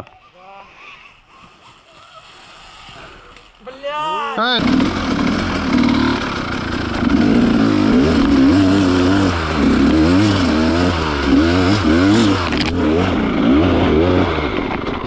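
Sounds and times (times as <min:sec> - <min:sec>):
motorcycle engine revving: 0:04.6 - 0:15.0.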